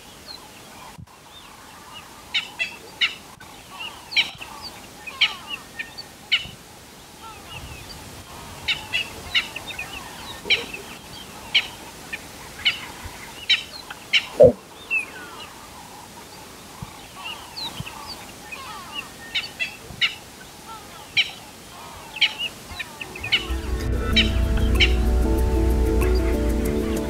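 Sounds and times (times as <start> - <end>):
birds chirping: 0.0 - 27.0
lower falling pitch sound: 23.1 - 27.0.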